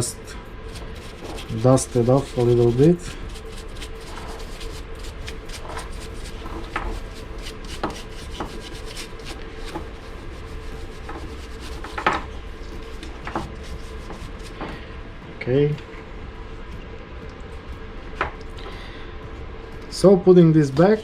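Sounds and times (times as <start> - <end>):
hand rubbing and brushing: 0.5 - 14.9.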